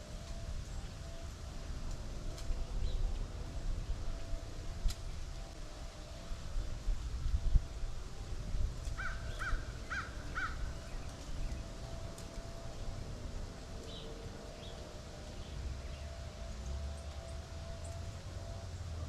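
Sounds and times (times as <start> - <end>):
steady low rumble: 0.0 - 19.0
bird harsh calls: 9.0 - 11.2.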